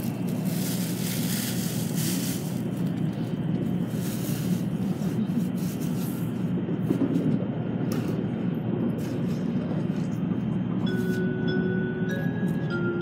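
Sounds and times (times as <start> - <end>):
train rumble from inside cabin: 0.0 - 13.0.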